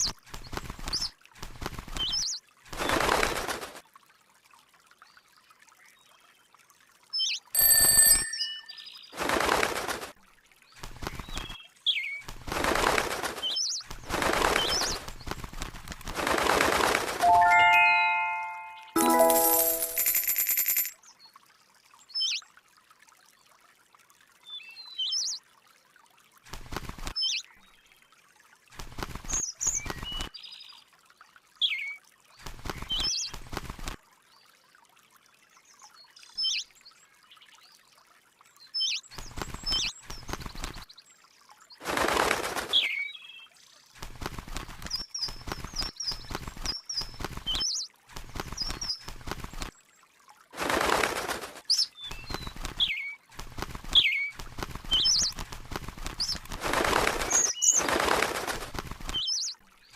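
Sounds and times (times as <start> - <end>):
rustling or fluttering: 0.2 - 3.8, 9.1 - 10.2, 12.2 - 20.9, 32.4 - 34.0, 39.1 - 40.9, 41.8 - 43.0, 44.0 - 49.7, 50.6 - 59.5
small bird chirping: 53.9 - 55.3.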